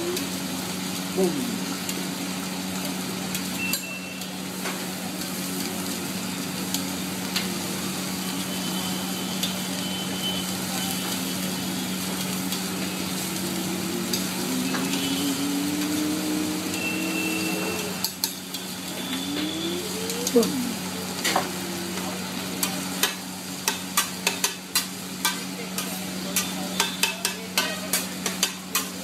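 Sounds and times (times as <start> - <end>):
food sizzling on griddle: 0.0 - 29.0
metal spatula clicking on griddle: 22.6 - 29.0.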